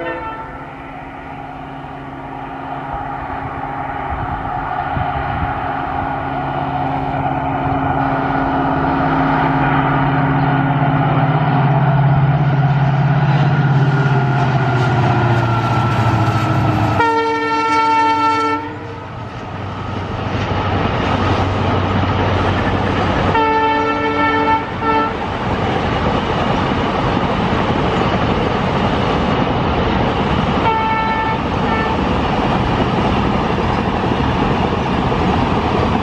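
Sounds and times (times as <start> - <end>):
train horn: 0.0 - 1.0, 13.3 - 19.2, 23.3 - 25.2, 30.6 - 32.0
locomotive engine humming: 0.0 - 36.0.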